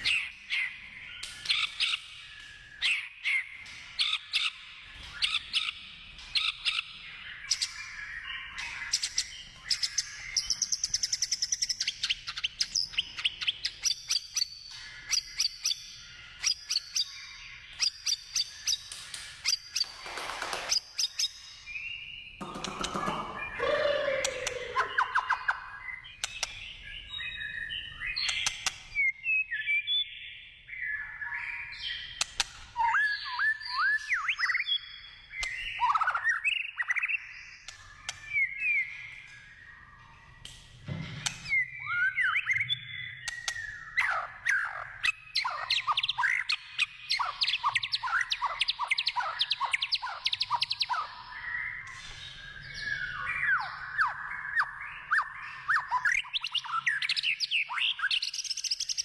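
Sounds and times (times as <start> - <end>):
bird singing whistled phrases: 23.3 - 26.0.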